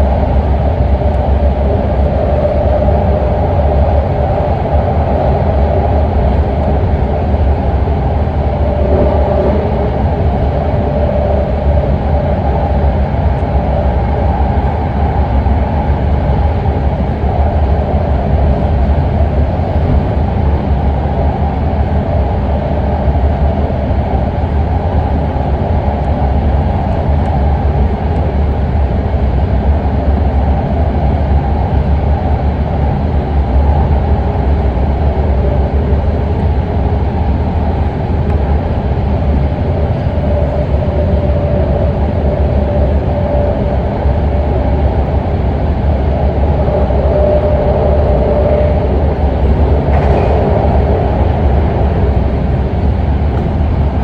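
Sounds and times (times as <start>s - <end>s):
train wheels rumbling on rail: 0.0s - 54.0s
faint steady tone: 38.3s - 53.9s.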